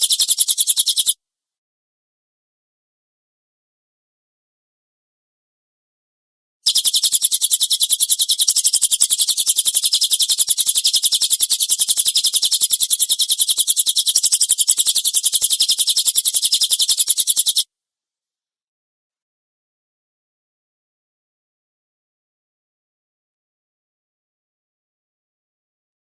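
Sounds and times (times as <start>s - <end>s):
bird chirping rapidly: 0.0s - 1.2s, 6.7s - 17.6s.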